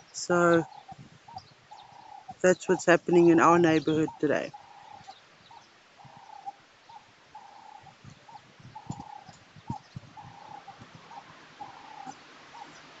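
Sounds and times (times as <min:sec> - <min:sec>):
bird calling: 0:00.0 - 0:13.0
muffled thumps on microphone: 0:07.9 - 0:11.1.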